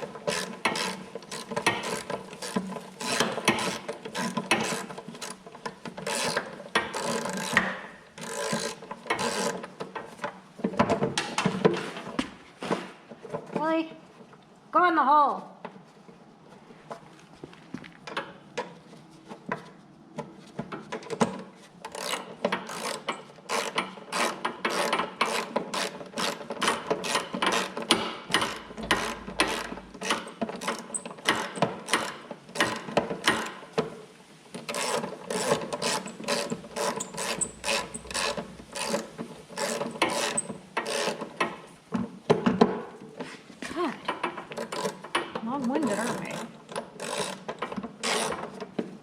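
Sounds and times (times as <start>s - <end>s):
ratchet wrench clicking: 8.2s - 9.6s, 21.9s - 33.4s, 34.7s - 41.2s, 47.0s - 47.4s.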